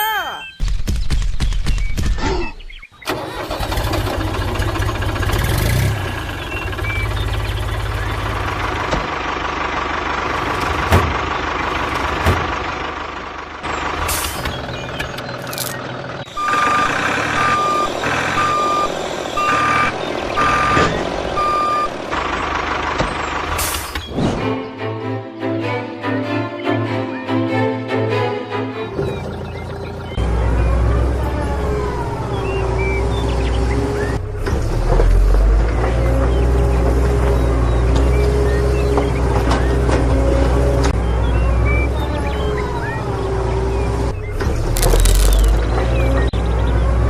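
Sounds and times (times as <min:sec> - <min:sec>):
truck engine running: 0:03.1 - 0:24.2, 0:28.8 - 0:47.0
reversing alarm beeping: 0:16.3 - 0:22.0.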